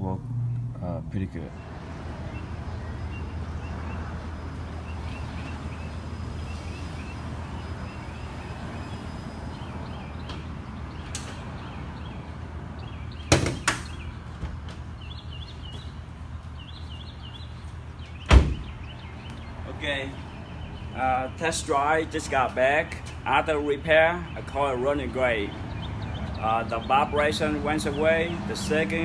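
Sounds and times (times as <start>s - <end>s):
sharp knocks: 13.3s - 14.8s
loud thump: 18.3s - 18.7s.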